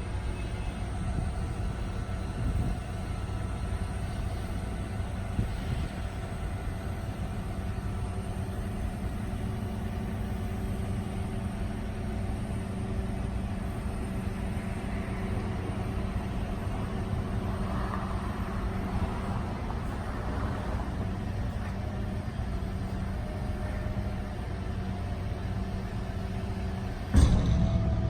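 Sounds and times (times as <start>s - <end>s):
truck engine idling: 0.0s - 28.0s
hydraulics folding boom: 26.9s - 28.0s
short knock: 27.2s - 28.0s.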